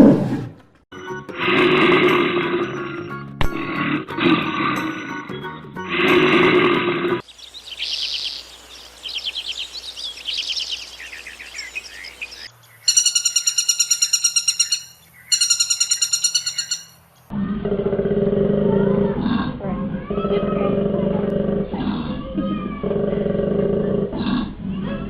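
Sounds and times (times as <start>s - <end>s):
lower bird call: 7.2s - 17.0s
pulsed high bird calls: 7.2s - 17.0s
bird chirping and trilling: 7.2s - 17.3s.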